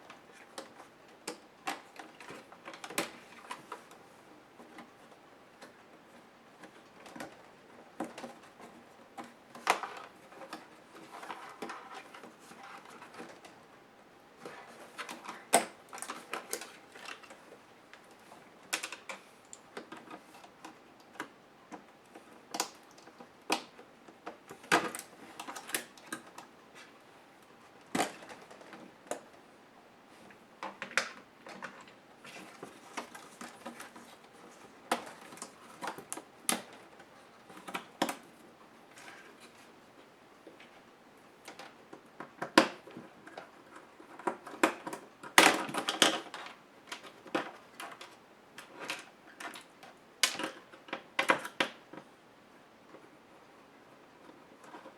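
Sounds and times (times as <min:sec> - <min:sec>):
plastic laptop parts clattering: 0:27.9 - 0:29.4, 0:41.4 - 0:52.0.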